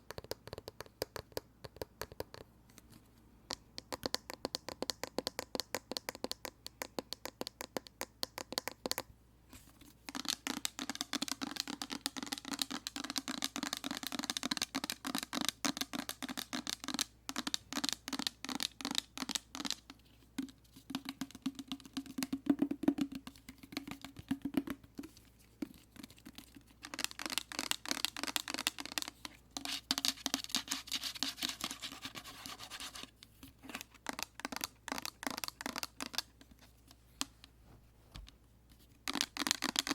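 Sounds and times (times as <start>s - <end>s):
tapping and scratching on plastic container: 10.1s - 37.3s.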